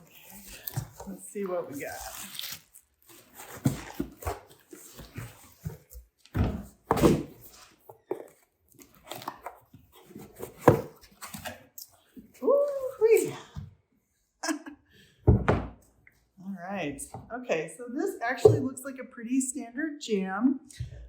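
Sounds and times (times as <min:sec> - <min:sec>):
cardboard and packing rustling: 0:00.0 - 0:13.3
box knocks and thumps: 0:05.3 - 0:08.3.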